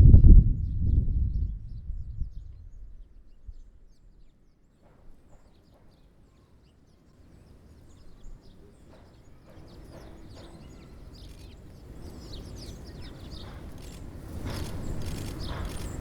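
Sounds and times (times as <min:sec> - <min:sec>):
low rumble: 0:00.0 - 0:04.1
small songbirds chirping: 0:00.6 - 0:16.0.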